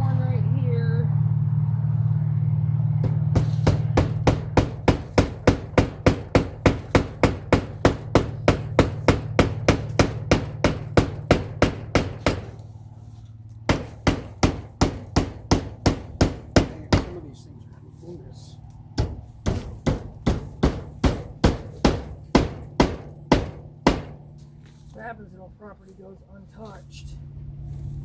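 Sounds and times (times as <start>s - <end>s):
low hum: 0.0s - 28.0s
hammer driving a nail: 3.0s - 12.6s, 13.7s - 17.2s, 19.0s - 24.3s.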